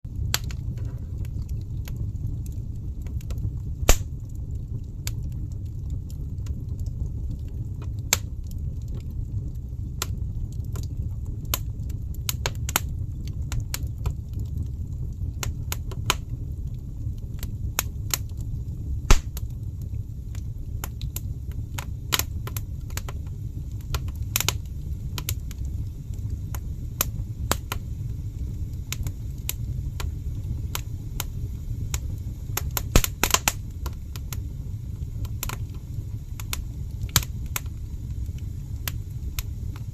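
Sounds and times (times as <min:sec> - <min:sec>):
fire pops: 0:00.1 - 0:39.9
low rumble: 0:00.1 - 0:39.9
wood fire crackling: 0:00.1 - 0:39.9.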